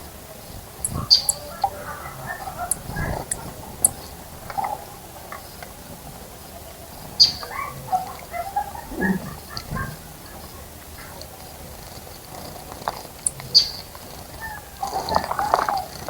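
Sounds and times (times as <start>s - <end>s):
wild birds chirping: 0.0s - 16.0s
sharp high ticks: 0.8s - 1.8s, 2.6s - 5.8s, 9.4s - 16.0s.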